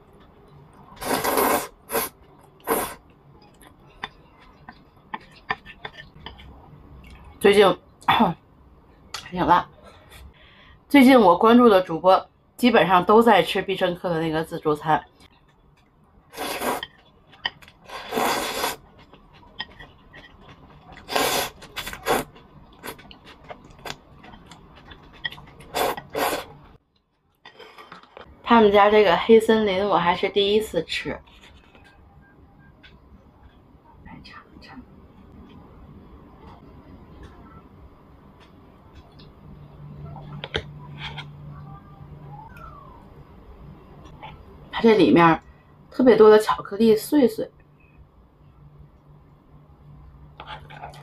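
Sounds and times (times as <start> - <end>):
person slurping noodles: 1.0 - 3.0, 16.3 - 16.9, 17.8 - 18.9, 21.0 - 23.1, 25.6 - 26.6.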